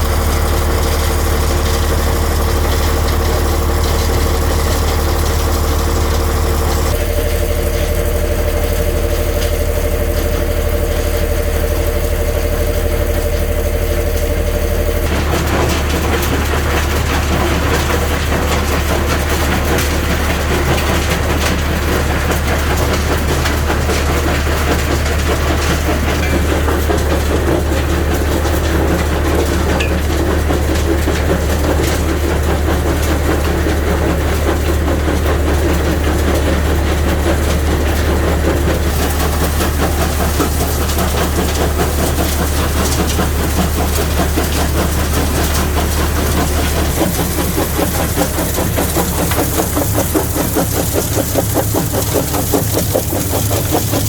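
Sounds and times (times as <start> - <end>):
machinery low hum: 0.0 - 54.0
rock rattling and clattering: 36.1 - 54.0.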